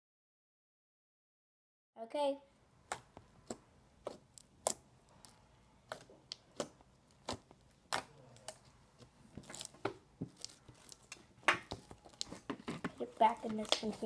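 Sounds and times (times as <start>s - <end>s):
beaded slime popping and crackling: 2.8s - 14.0s.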